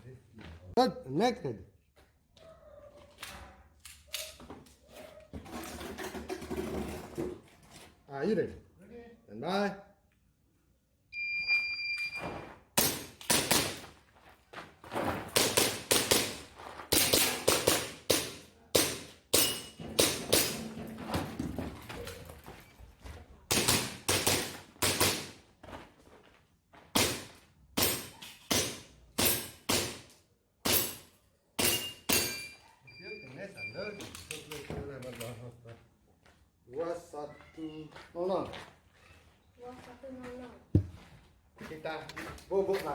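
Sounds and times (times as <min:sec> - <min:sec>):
shot timer beep: 0:11.2 - 0:12.2
pellets striking steel targets: 0:12.8 - 0:13.9, 0:15.3 - 0:21.4, 0:23.5 - 0:25.4, 0:26.9 - 0:32.6
airsoft pistol firing: 0:23.5 - 0:25.4.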